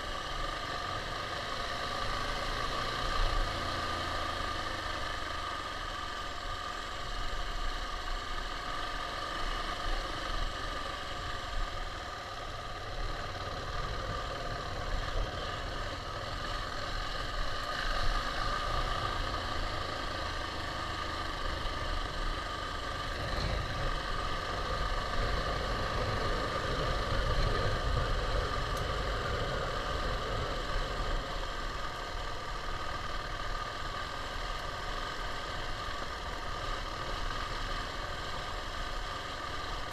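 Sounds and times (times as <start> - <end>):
single-cylinder engine running: 0.0 - 39.9.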